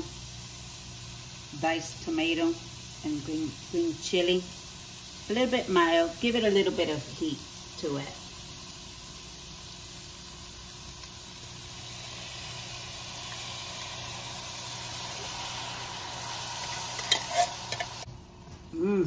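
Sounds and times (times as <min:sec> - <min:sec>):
vegetables sizzling in a pot: 0:00.0 - 0:18.4
spatula scraping a can: 0:16.9 - 0:18.0.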